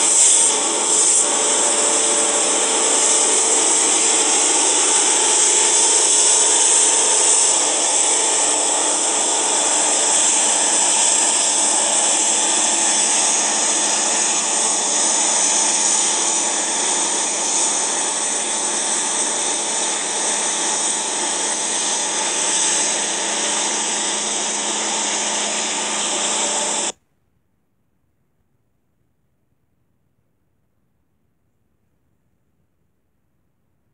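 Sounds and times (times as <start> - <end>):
train roar: 0.0 - 26.9.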